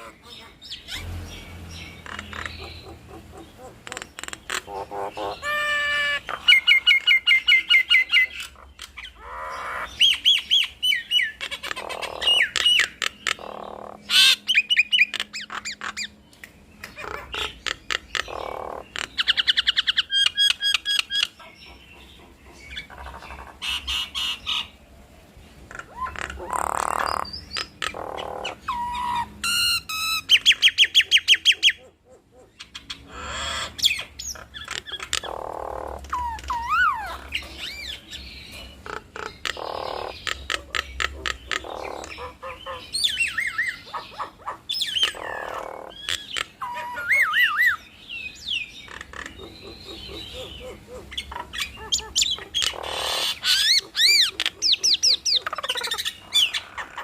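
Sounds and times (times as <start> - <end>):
harsh bird squawks: 0.0 - 1.1, 2.0 - 16.1, 25.7 - 38.2, 38.8 - 47.8, 48.8 - 57.0
birds calling in a duet: 0.0 - 57.0.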